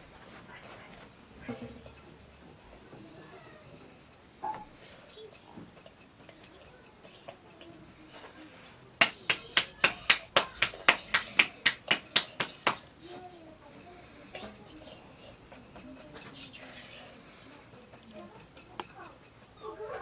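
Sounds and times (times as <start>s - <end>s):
rapid sharp knocks: 9.0s - 12.9s.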